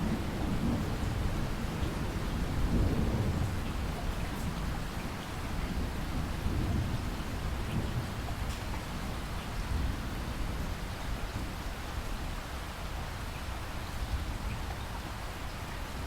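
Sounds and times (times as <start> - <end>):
rolling thunder rumble: 0.0 - 10.7
heavy rain falling: 0.0 - 16.0.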